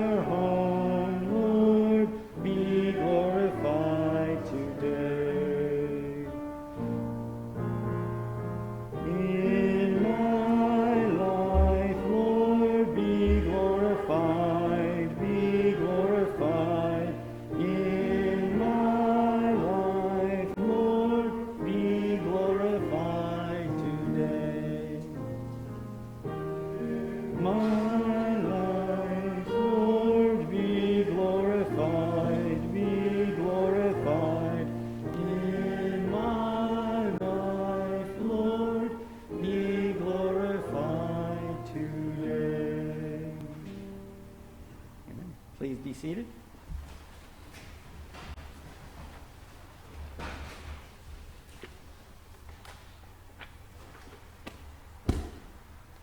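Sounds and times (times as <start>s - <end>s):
congregation singing a hymn: 0.0s - 44.5s.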